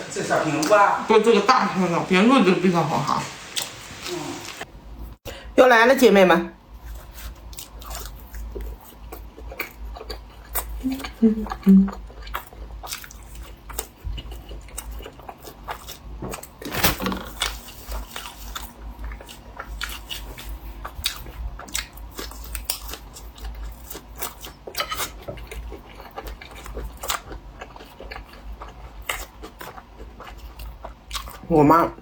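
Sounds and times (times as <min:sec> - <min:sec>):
person chewing crunchy food: 0:06.8 - 0:31.5.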